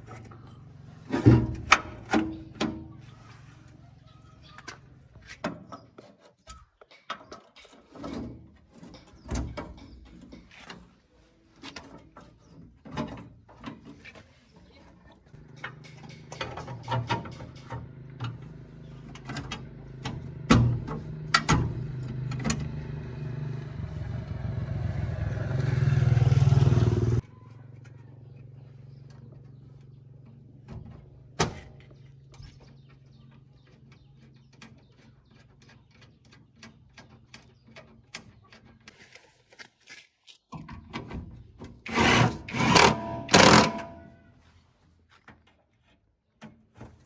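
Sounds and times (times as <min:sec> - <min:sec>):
faint engine hum: 0:15.3 - 0:38.6
engine revving: 0:17.6 - 0:27.2, 0:41.9 - 0:44.2
sharp knocking or scraping: 0:41.9 - 0:44.3.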